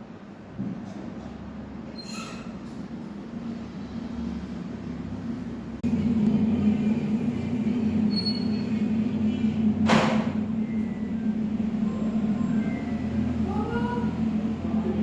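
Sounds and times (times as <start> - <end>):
low mechanical drone: 2.6 - 15.0.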